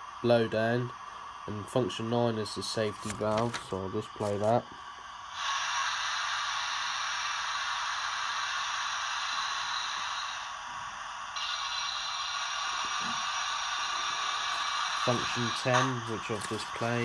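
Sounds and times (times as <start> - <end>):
steam hiss from small speaker: 0.0 - 17.0.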